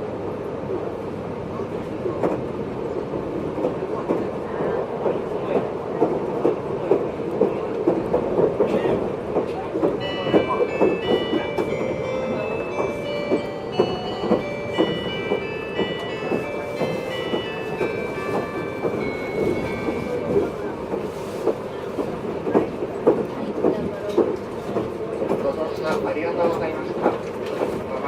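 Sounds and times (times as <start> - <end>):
train running rumble: 0.0 - 28.0
chime melody of high notes: 10.0 - 20.5.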